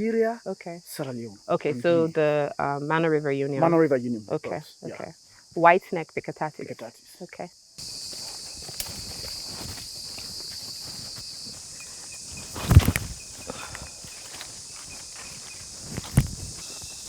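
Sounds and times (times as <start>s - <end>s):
high-pitched insect chorus: 0.0s - 17.0s
footsteps on a trail: 7.8s - 17.0s
rustling: 7.8s - 17.0s
heavy thumps: 8.7s - 16.7s.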